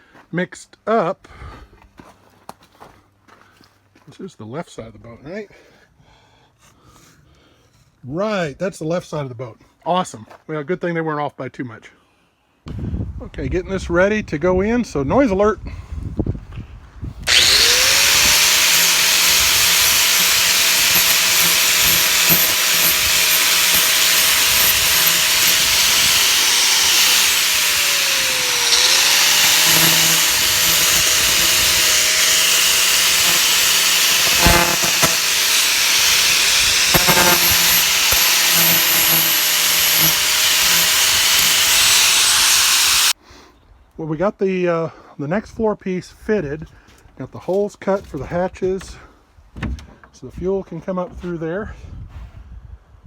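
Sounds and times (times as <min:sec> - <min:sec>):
electric power tool running: 0:17.2 - 0:43.2.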